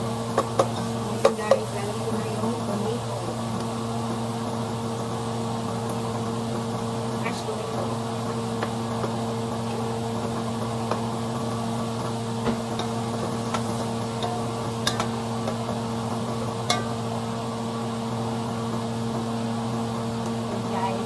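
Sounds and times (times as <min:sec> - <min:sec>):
food sizzling in a pan: 0:00.0 - 0:21.0
low electrical hum: 0:00.0 - 0:21.0
utensil clicking against pan: 0:00.4 - 0:01.8, 0:12.4 - 0:15.8, 0:16.6 - 0:17.0.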